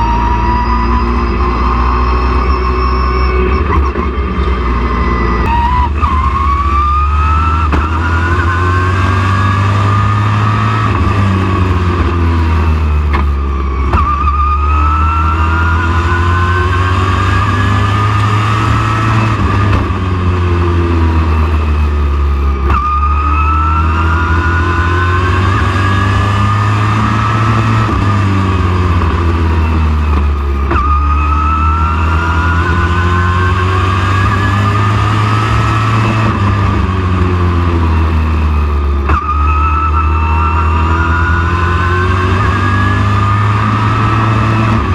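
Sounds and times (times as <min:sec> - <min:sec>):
race truck engine accelerating: 0:00.0 - 0:44.9.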